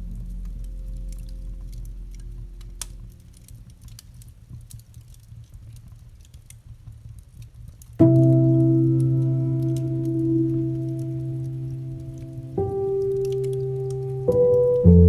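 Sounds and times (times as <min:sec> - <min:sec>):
low piano chord: 0:00.0 - 0:04.0, 0:08.0 - 0:15.0
campfire crackling: 0:00.0 - 0:15.0.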